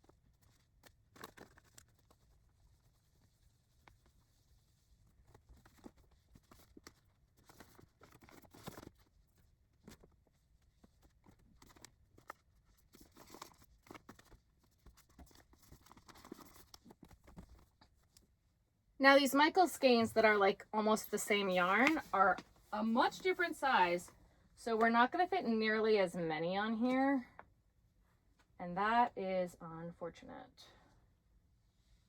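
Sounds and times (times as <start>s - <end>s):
faint yarn rustling: 19.0s - 25.6s.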